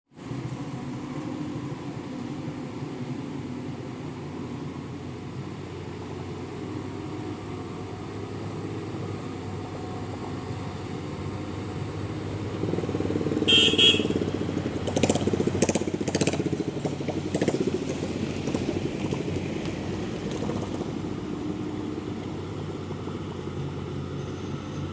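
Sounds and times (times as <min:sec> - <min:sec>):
truck engine running: 0:06.7 - 0:24.9.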